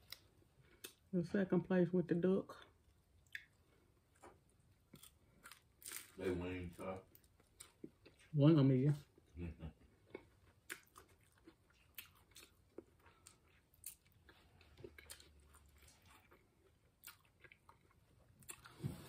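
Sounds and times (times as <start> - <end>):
chewing and mouth sounds: 2.5 - 6.2, 9.9 - 18.8.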